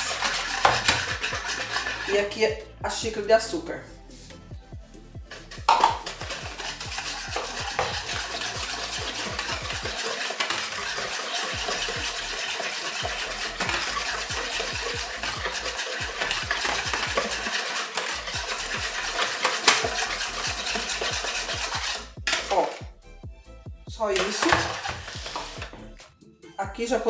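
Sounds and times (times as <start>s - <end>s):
whisk beating mixture in bowl: 0.0s - 22.9s, 24.0s - 25.9s
whisk wires clicking on bowl: 5.2s - 22.9s, 24.0s - 25.9s.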